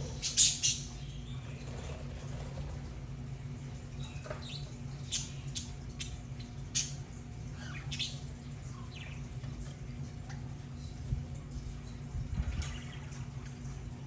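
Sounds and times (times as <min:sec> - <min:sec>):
budgerigars chirping and squawking: 0:00.0 - 0:02.1.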